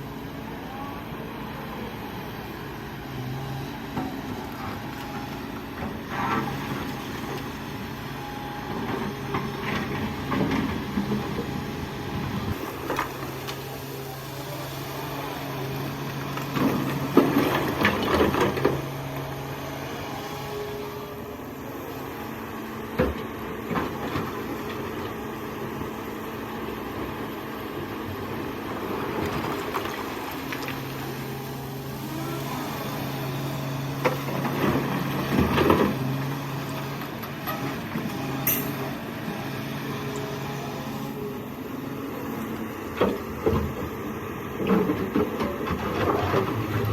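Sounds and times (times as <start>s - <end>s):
excavator diesel engine: 0.0s - 46.9s.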